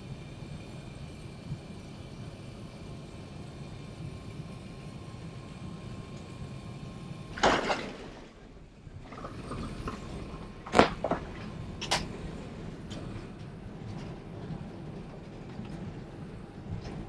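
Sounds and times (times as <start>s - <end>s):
airplane cabin rumble: 0.1s - 17.0s
loud rustle or knock: 7.4s - 8.3s.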